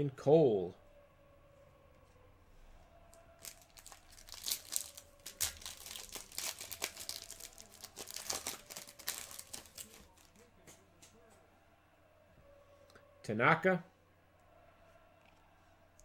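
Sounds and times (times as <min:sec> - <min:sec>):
foil wrapper tearing and crinkling: 0:03.4 - 0:10.4
cards being handled: 0:03.4 - 0:11.2.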